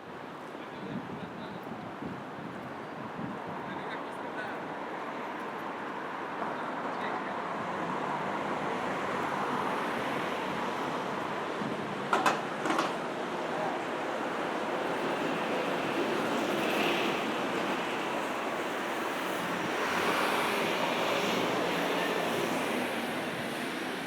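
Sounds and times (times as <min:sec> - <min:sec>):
passing road traffic: 0:04.2 - 0:24.0
sharp knocks or clicks: 0:12.1 - 0:13.0.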